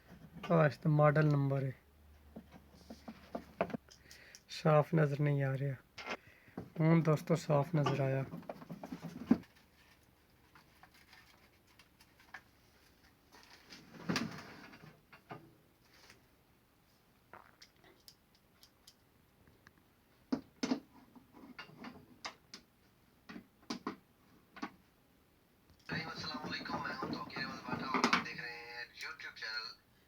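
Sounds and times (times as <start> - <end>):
plastic parts clicking and tapping: 25.7 - 28.4.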